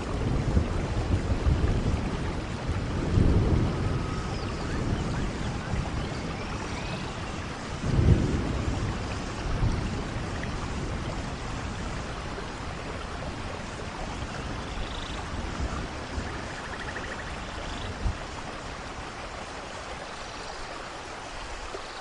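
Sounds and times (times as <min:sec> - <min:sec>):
thunder rumbling: 0:00.0 - 0:19.1
steady rain falling: 0:00.0 - 0:22.0.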